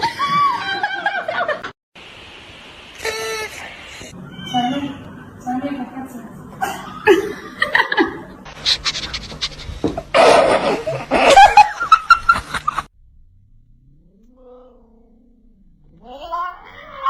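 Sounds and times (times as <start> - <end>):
cat meowing and yowling: 4.1 - 5.3.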